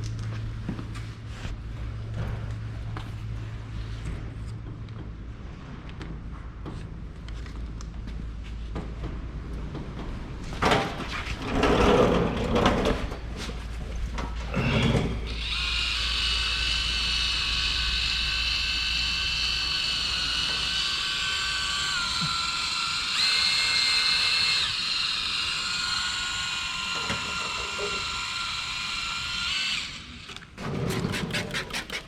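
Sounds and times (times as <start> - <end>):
electric drill whining: 14.6 - 32.0.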